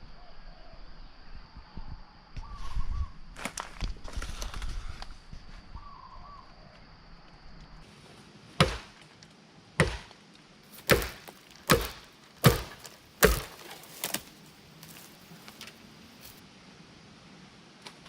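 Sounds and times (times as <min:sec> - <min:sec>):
blade chopping bamboo: 0:08.6 - 0:09.0, 0:09.8 - 0:15.1.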